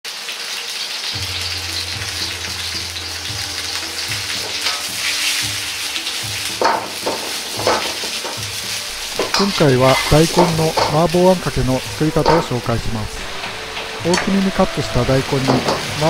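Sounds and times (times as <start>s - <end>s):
food sizzling in a wok: 0.1s - 16.0s
ladle knocking against wok: 6.4s - 8.5s, 9.1s - 11.1s.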